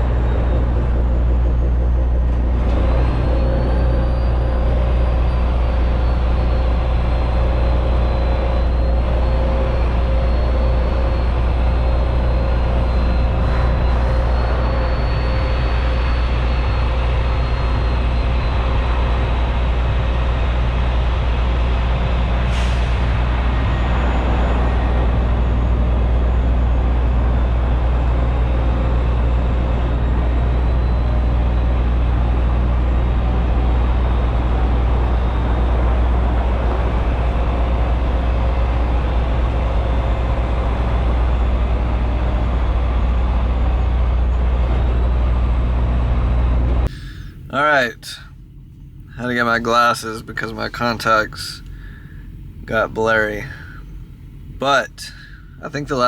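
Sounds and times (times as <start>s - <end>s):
truck diesel engine running: 0.0s - 56.0s.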